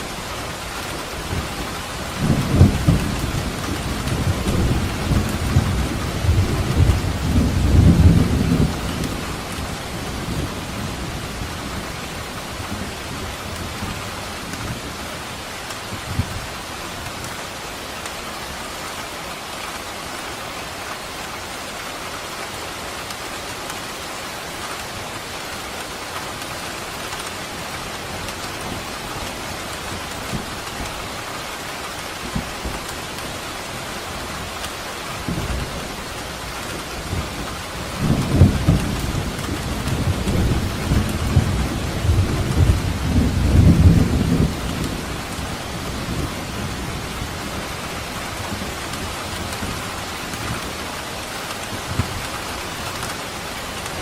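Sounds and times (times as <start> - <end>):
steady rain falling: 0.0 - 54.0
thunder rumbling: 0.2 - 14.0, 35.2 - 54.0.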